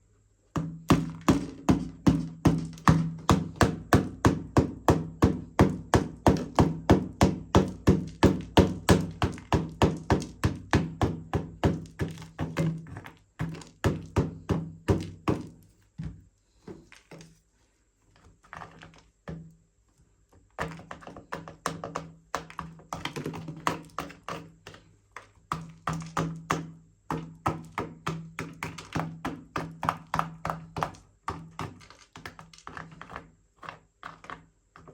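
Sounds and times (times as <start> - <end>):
hollow plastic thunks: 0.6 - 17.4.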